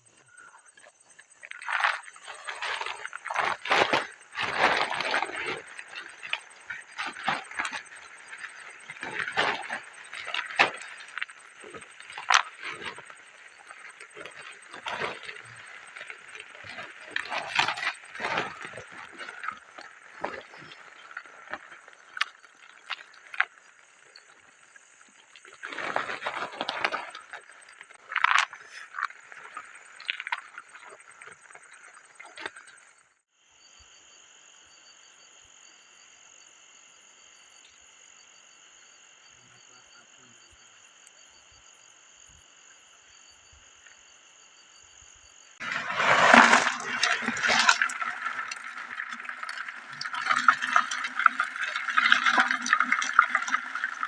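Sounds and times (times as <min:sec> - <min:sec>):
night chorus of frogs and insects: 0:00.0 - 0:54.0.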